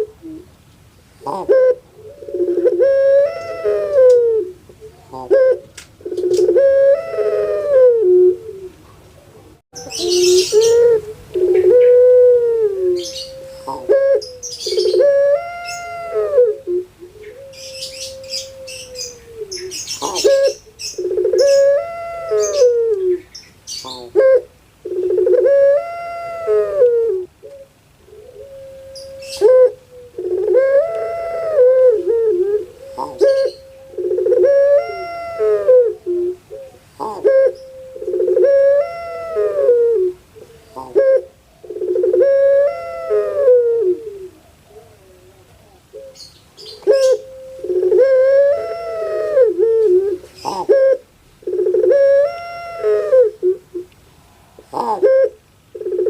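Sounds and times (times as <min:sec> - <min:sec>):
dove cooing: 0:00.0 - 0:00.6, 0:01.2 - 0:56.0
small birds chirping: 0:08.7 - 0:12.0, 0:13.0 - 0:16.0, 0:17.0 - 0:24.3, 0:32.6 - 0:35.1, 0:44.3 - 0:48.9, 0:50.1 - 0:50.8.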